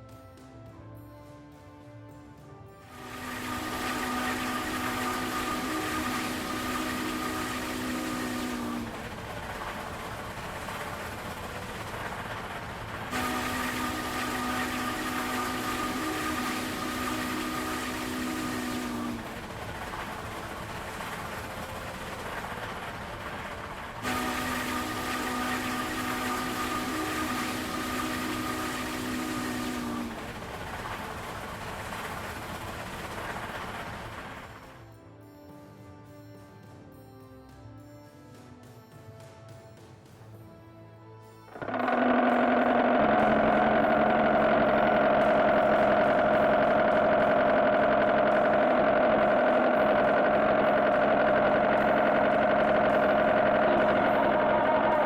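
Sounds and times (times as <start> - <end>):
multi-tone air horn blasts: 2.8 - 34.7, 41.5 - 55.0
vehicle running noise: 2.9 - 34.8, 41.6 - 55.0.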